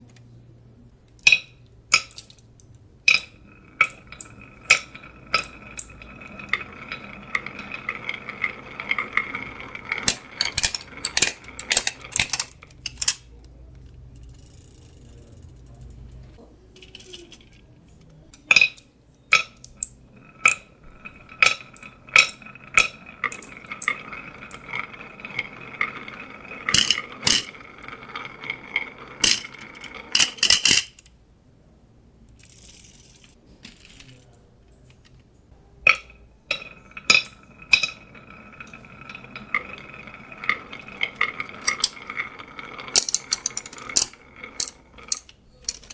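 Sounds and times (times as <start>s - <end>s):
marbles clattering on wooden track: 1.2s - 31.1s, 35.8s - 45.9s
ringing tone of rolling marbles: 3.1s - 12.8s, 18.4s - 30.8s, 35.9s - 45.9s.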